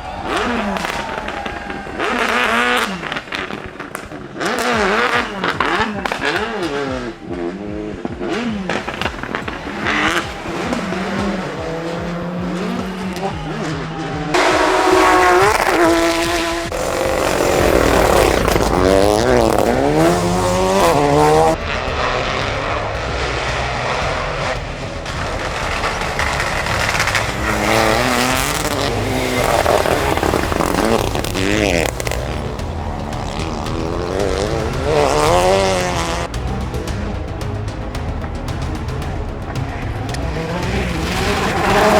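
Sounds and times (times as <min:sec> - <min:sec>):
rally car engines at full throttle: 0:00.0 - 0:41.9.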